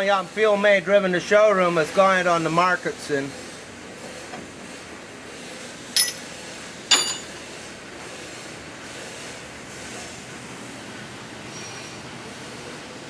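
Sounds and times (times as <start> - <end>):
shop background noise: 2.7 - 10.3
metal-on-metal clanks: 6.0 - 7.4.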